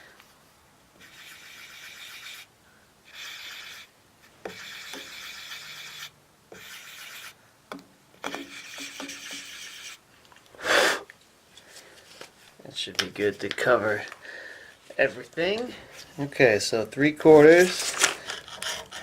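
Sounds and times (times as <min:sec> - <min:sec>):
scratchy marking strokes on cast iron: 0:01.0 - 0:02.5, 0:03.1 - 0:07.4, 0:08.2 - 0:10.0.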